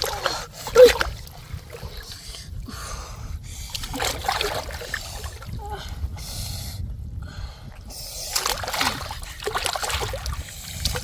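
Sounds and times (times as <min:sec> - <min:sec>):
shallow water splashing: 0:00.0 - 0:02.7, 0:03.6 - 0:06.0, 0:07.8 - 0:11.0.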